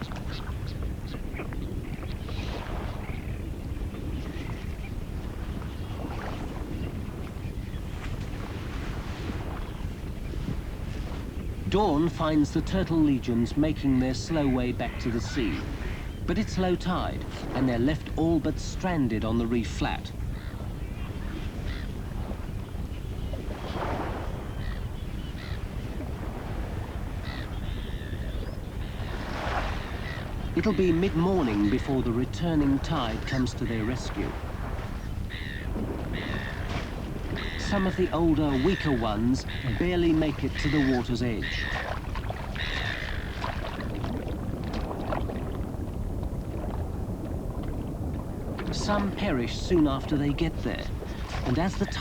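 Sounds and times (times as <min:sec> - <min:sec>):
shallow water sloshing: 0:00.0 - 0:52.0
harsh bird calls: 0:11.5 - 0:22.1, 0:26.7 - 0:43.8, 0:48.7 - 0:52.0.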